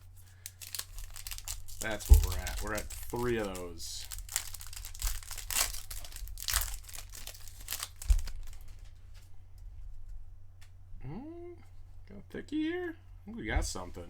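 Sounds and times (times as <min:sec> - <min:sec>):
foil wrapper crinkling and tearing: 0:00.0 - 0:09.0
low thump: 0:02.0 - 0:02.6.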